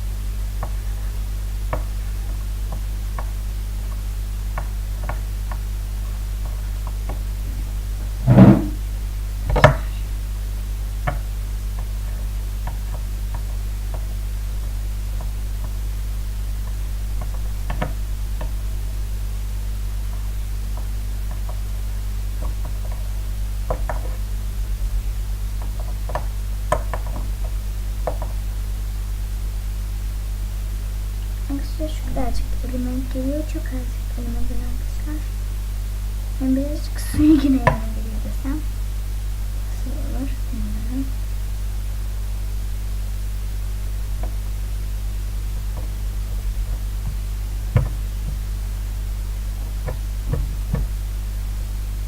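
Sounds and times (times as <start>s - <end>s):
low electrical hum: 0.0s - 52.0s
loud knocks: 7.0s - 8.8s, 9.5s - 9.9s, 45.7s - 48.6s, 49.6s - 51.1s.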